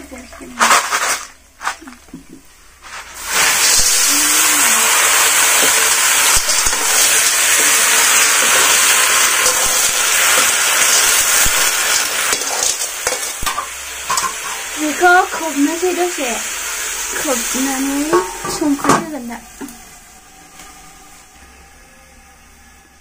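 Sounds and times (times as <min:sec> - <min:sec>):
snails sizzling in a wok: 0:00.0 - 0:22.5
metal ladle knocking wok: 0:11.4 - 0:14.7, 0:18.0 - 0:19.7.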